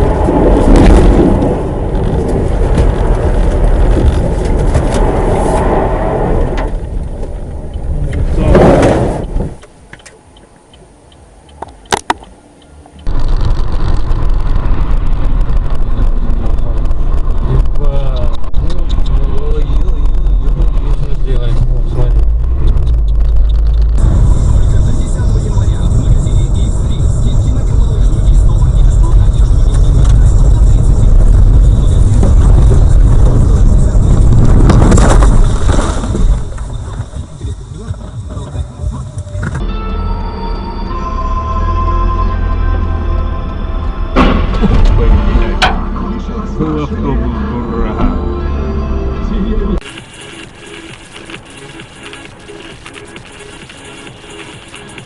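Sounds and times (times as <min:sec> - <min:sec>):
harsh crunching scraping: 0:00.0 - 0:09.6, 0:13.1 - 0:39.3
car driving on road rumble: 0:00.0 - 0:55.0
sharp clicks: 0:22.5 - 0:24.0.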